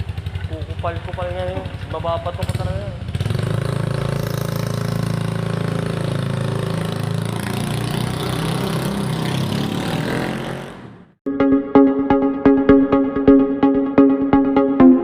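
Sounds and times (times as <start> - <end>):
scooter engine running: 0.0 - 11.2.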